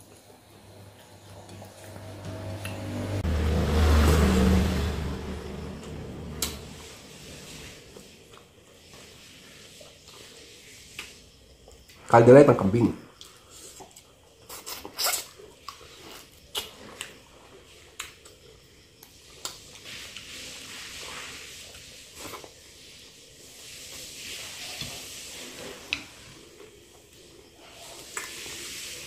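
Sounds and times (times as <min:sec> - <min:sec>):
chewing soft food: 0:05.8 - 0:12.1, 0:13.1 - 0:29.0.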